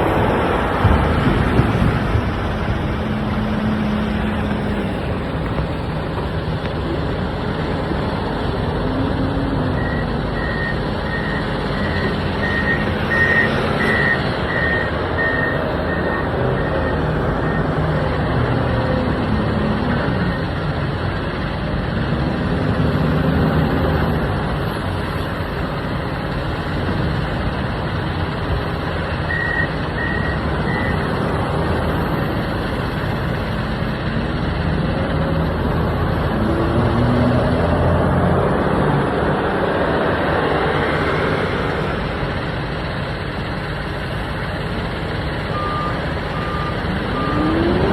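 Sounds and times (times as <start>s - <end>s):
wheel loader diesel engine revving: 0.0s - 47.9s
reversing alarm beeping: 9.7s - 18.4s, 29.2s - 31.8s, 45.5s - 47.9s.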